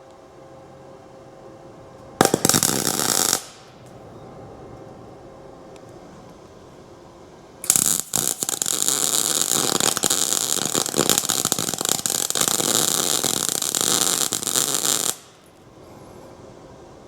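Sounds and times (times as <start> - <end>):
welder arc crackling: 2.2 - 3.7, 7.6 - 15.6.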